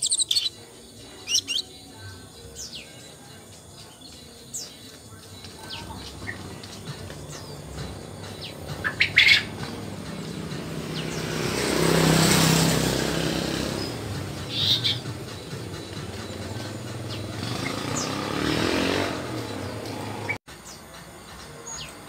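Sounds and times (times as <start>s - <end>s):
bird chirping high falling notes: 0.0s - 1.9s, 7.4s - 20.4s
motor vehicle passing: 5.6s - 20.4s.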